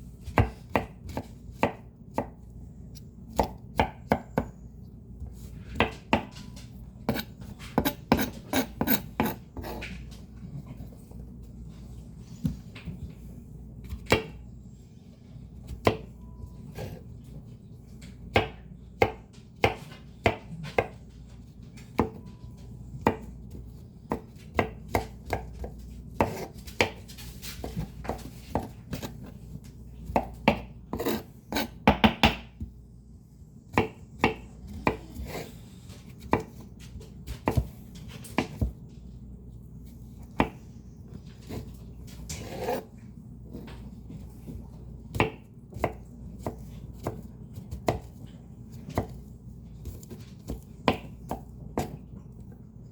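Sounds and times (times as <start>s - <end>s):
knife chopping leafy greens: 0.2s - 4.5s, 5.2s - 9.8s, 18.2s - 21.0s, 23.0s - 32.7s, 33.7s - 35.5s, 36.1s - 38.8s, 43.6s - 52.1s.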